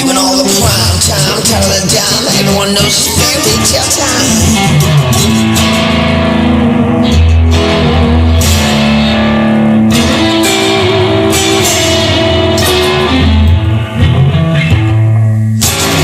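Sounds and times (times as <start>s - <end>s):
bass guitar: 0.0s - 16.0s
electric guitar playing: 0.0s - 16.0s.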